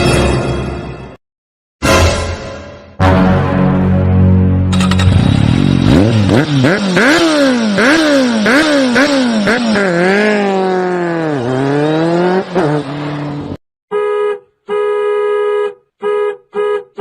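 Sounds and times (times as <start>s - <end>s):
engine revving: 4.7s - 13.6s
car horn honking: 13.9s - 17.0s.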